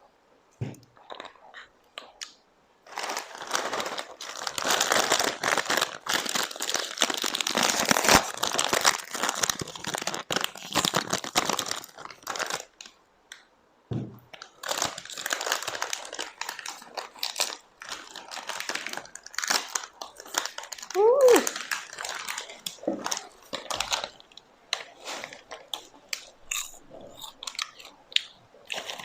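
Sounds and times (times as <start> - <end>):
food packaging crinkling: 1.0 - 13.0, 14.3 - 29.0
packaging tearing: 2.9 - 12.8, 14.4 - 24.2.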